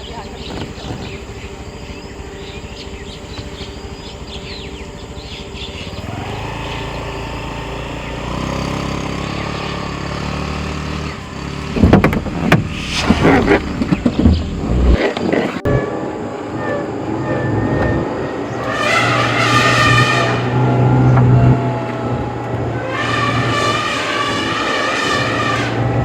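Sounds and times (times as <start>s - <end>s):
birds chirping: 0.0s - 24.7s
vehicle engine: 0.0s - 26.0s
loud sharp clattering knocks: 11.7s - 15.2s.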